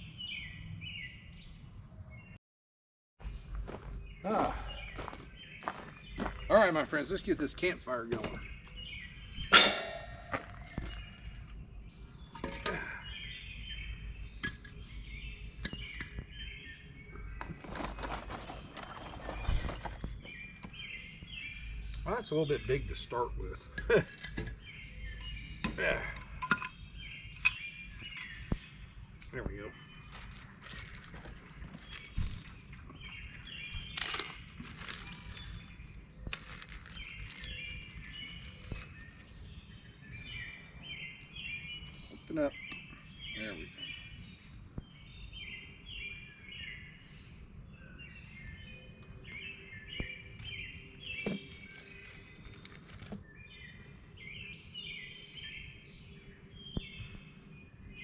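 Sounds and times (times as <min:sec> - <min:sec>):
birds chirping: 0:03.2 - 0:58.0
high insect drone: 0:03.2 - 0:58.0
firewood knocking and rustling: 0:07.5 - 0:11.6, 0:12.2 - 0:13.0, 0:14.2 - 0:16.4, 0:17.4 - 0:20.8, 0:23.6 - 0:39.4, 0:50.0 - 0:53.4.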